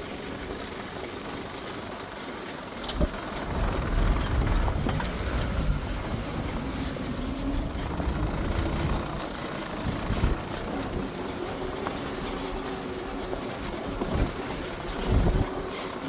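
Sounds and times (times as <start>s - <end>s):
low rumble of the ride: 0.0s - 16.0s
vehicle engine driving: 2.8s - 15.5s.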